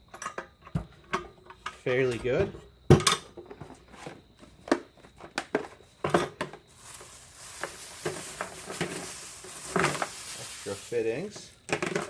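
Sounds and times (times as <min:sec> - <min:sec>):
rustling hiss: 0:06.7 - 0:11.7.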